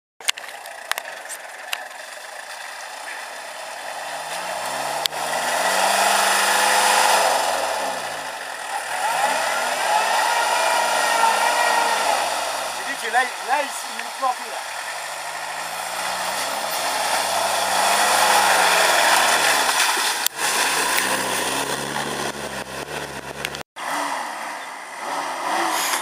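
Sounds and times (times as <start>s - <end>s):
engine revving under load: 0.9s - 26.0s.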